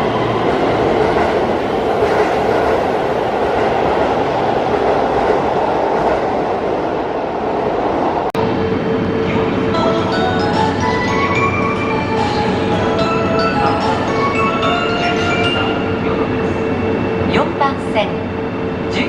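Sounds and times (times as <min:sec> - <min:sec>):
electric train rumbling: 0:00.0 - 0:19.0
music: 0:08.5 - 0:17.3.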